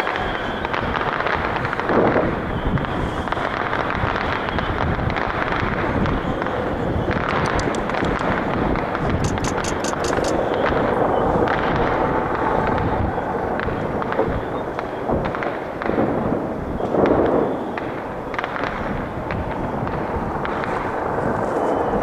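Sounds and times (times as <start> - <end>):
fireworks bursts and crackling: 0.0 - 22.0.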